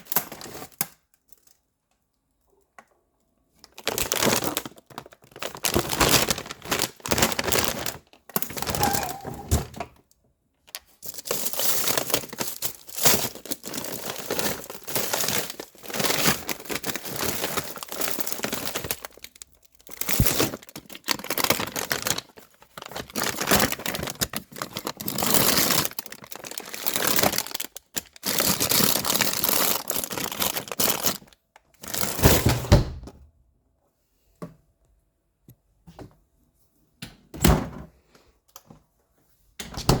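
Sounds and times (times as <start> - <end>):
plastic or paper crinkling: 3.6 - 9.4, 10.7 - 32.4.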